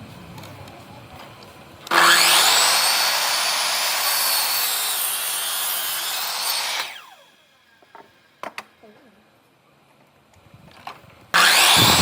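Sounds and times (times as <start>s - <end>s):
power tool cutting wood: 1.9s - 7.4s, 11.4s - 12.0s.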